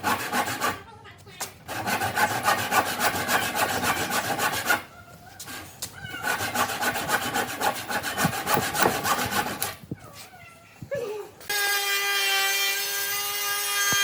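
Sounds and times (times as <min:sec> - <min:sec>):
hand tool scraping wood: 0:01.7 - 0:04.8, 0:06.2 - 0:09.7.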